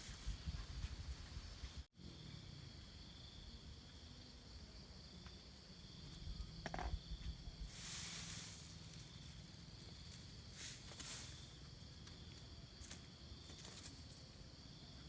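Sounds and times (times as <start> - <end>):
insects droning: 0.0 - 15.0
burst of hissing noise: 7.6 - 9.0.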